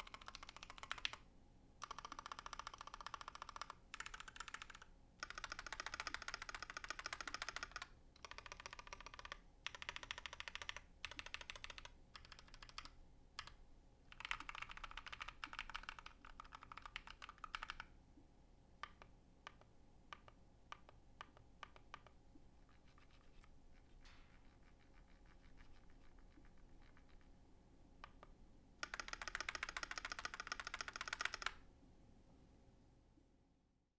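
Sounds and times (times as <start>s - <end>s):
mechanical keyboard typing: 0.0s - 1.2s, 1.8s - 17.9s, 18.8s - 22.2s, 22.8s - 27.3s, 28.0s - 31.6s.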